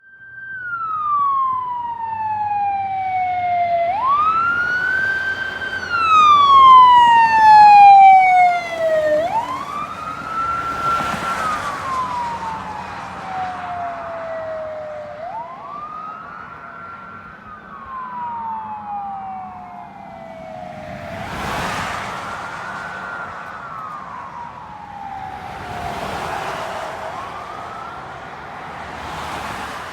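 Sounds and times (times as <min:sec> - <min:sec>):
emergency sirens wailing: 0:00.0 - 0:29.9
vehicles rushing past: 0:00.8 - 0:29.9.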